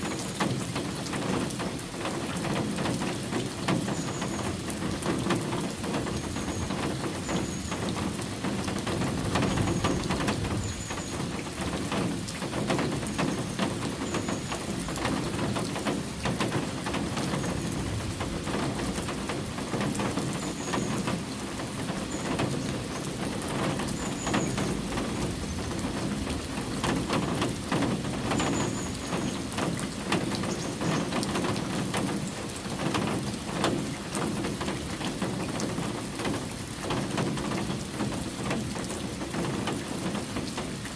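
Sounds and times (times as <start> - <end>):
raindrops ticking on surfaces: 0.0 - 40.9
steady rain falling: 0.0 - 40.9.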